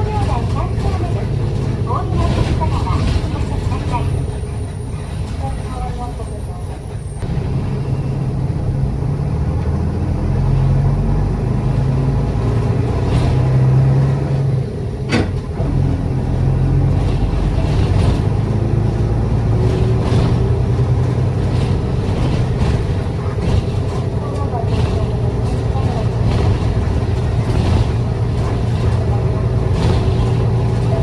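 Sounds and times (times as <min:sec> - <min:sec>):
faint rattles: 0:00.0 - 0:07.7, 0:12.3 - 0:31.0
bus engine running: 0:00.0 - 0:31.0.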